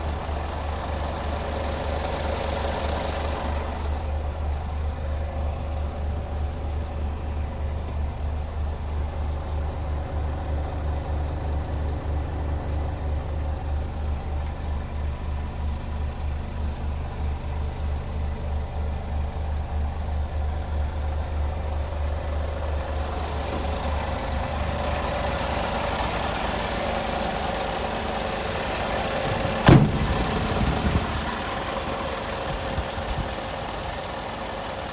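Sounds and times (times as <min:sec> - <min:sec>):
diesel truck engine idling: 0:00.0 - 0:34.9
sharp knock: 0:29.6 - 0:30.4.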